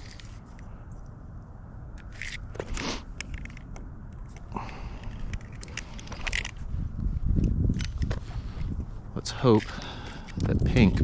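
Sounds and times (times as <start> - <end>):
small clicks and scrapes: 0.0 - 0.7, 2.0 - 6.6.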